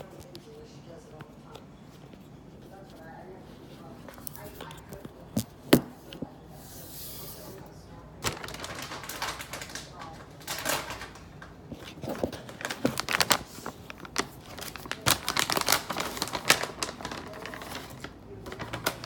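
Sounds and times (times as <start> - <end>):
plastic bag crinkling: 8.2 - 19.0.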